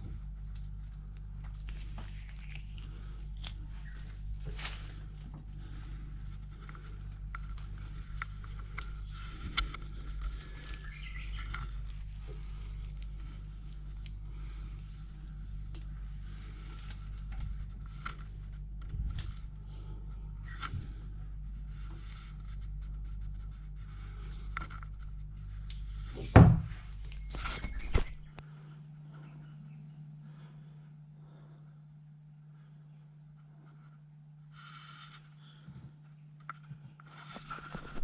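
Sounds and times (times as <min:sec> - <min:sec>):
steady low hum: 0:00.0 - 0:38.0
loud knock: 0:26.3 - 0:26.7.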